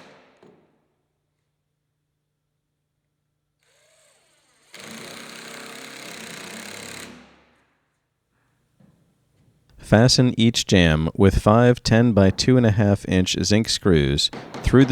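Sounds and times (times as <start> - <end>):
power drill running: 3.6 - 7.4.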